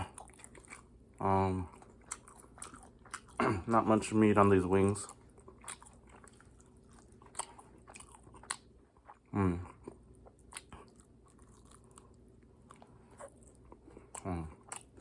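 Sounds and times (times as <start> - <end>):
chewing and crunching fried chicken: 0.0 - 15.0
person humming mm: 9.3 - 9.8.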